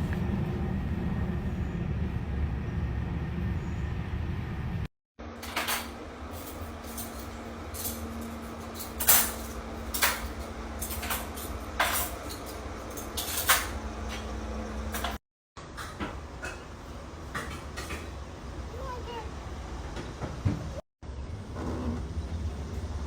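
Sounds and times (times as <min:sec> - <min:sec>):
steady low hum: 0:00.0 - 0:04.9
objects clicking and knocking: 0:05.4 - 0:14.3.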